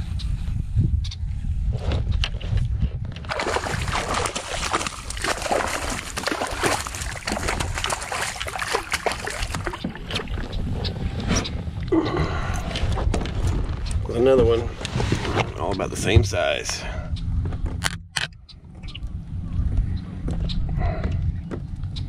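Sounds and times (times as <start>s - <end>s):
wind rumble on microphone: 0.0s - 22.0s
fish thrashing and water splashing: 3.2s - 11.0s
person speaking: 15.5s - 17.0s.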